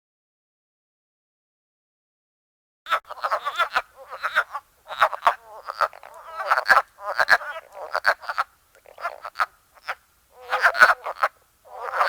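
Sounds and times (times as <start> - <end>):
frogs croaking: 2.9 - 12.0.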